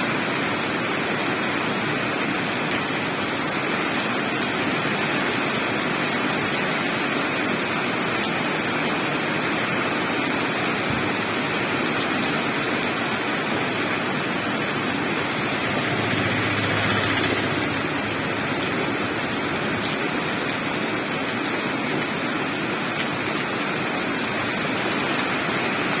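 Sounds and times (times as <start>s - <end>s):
flowing water rushing: 9.3s - 26.0s.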